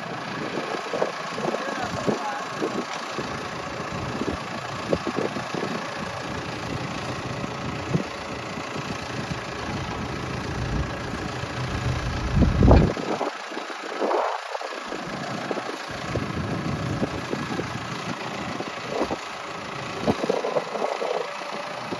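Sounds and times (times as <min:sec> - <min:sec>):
engine idling: 0:00.0 - 0:21.9
wind buffeting microphone: 0:08.8 - 0:13.3.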